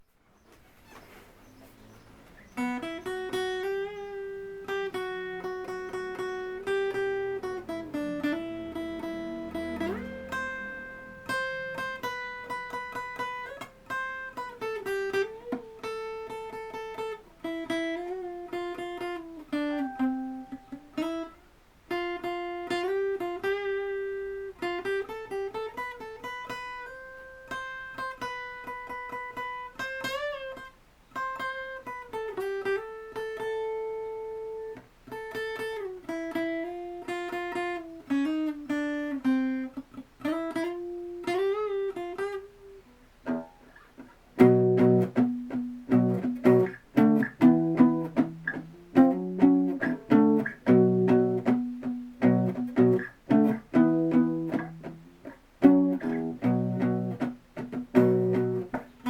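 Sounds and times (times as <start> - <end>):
guitar playing rock riffs: 1.8 - 59.0.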